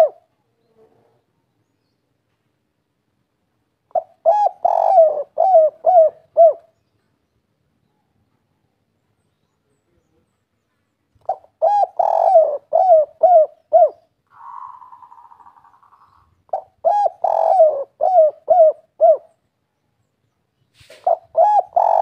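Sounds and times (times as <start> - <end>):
dove cooing: 0.0 - 1.2, 3.9 - 6.8, 11.2 - 19.4, 20.9 - 22.0.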